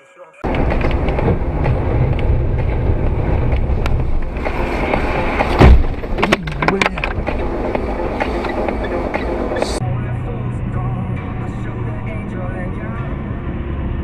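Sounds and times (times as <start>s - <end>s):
heavy bang: 0.4s - 7.6s
vehicle engine and road noise: 0.4s - 14.0s.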